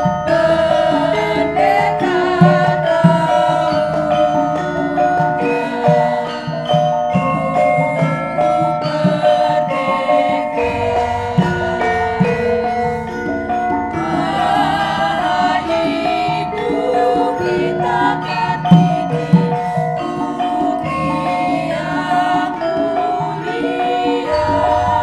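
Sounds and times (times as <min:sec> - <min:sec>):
gamelan ensemble playing: 0:00.0 - 0:25.0
voices singing: 0:00.0 - 0:25.0.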